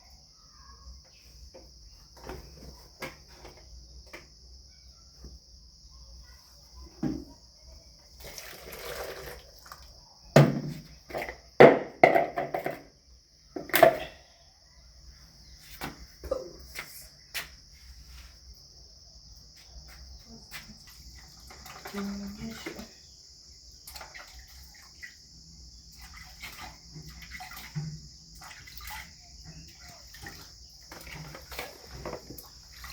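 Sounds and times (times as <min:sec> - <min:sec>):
crickets trilling: 0:00.0 - 0:32.9
knocks and handling noises: 0:10.4 - 0:12.9.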